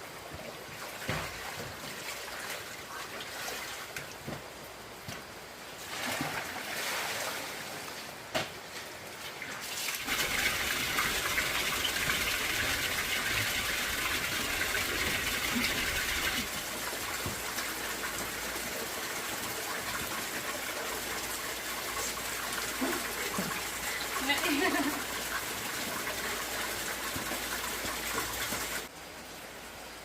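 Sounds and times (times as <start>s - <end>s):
rushing water: 0.0s - 30.0s.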